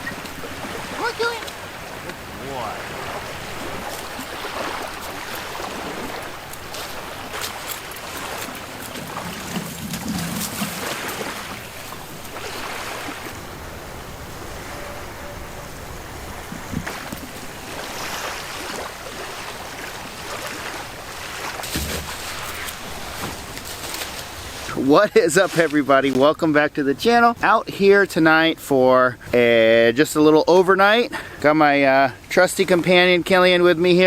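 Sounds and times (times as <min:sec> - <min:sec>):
wind on microphone: 0:00.0 - 0:23.6
waves washing onto beach: 0:00.0 - 0:27.6.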